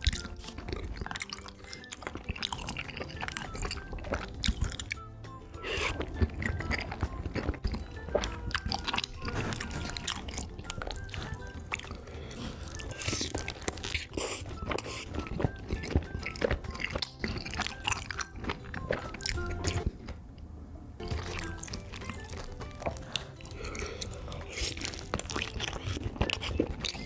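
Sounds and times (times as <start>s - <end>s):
sticky mouth clicks and smacks: 0.0s - 20.2s, 21.0s - 27.0s
biting and chewing food: 0.0s - 20.4s, 21.0s - 27.0s.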